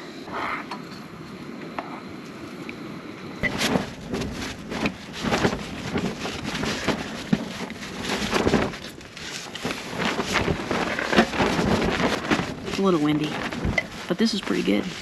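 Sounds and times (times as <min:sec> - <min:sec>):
wind buffeting microphone: 0:03.4 - 0:15.0.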